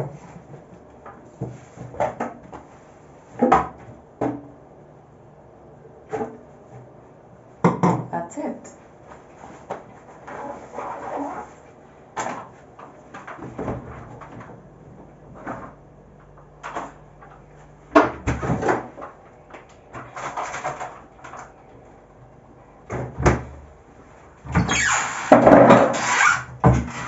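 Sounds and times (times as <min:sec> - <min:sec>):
kitchen items knocking and rustling: 0:00.0 - 0:02.7.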